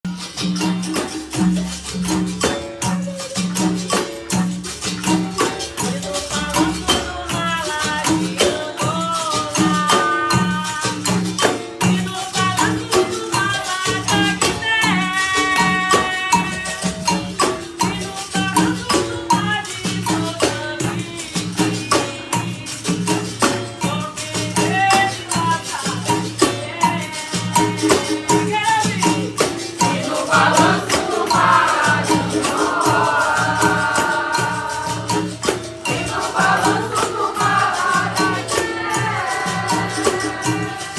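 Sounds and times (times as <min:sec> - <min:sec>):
drum playing steady rhythm: 0:00.0 - 0:40.9
berimbau: 0:00.1 - 0:40.9
rattles and hand percussion: 0:00.1 - 0:40.9
person singing: 0:02.8 - 0:04.8, 0:35.9 - 0:40.9
people singing: 0:29.8 - 0:40.9.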